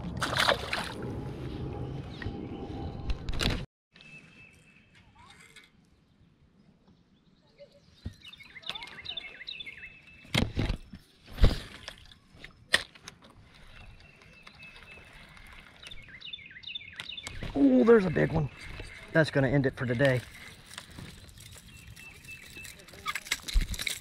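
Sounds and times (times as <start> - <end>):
songbird chirping: 3.9 - 11.2, 13.5 - 23.3.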